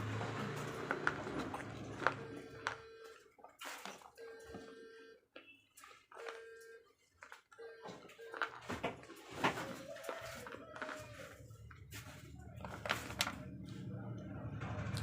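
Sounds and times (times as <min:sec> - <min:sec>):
crunchy chewing: 0:05.8 - 0:13.6.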